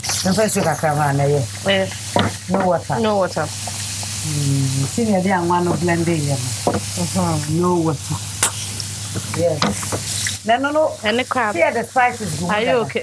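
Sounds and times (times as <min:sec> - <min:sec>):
food sizzling in a pan: 0:00.0 - 0:13.0
stirring in a pan: 0:04.9 - 0:12.6
woman talking: 0:10.4 - 0:13.0.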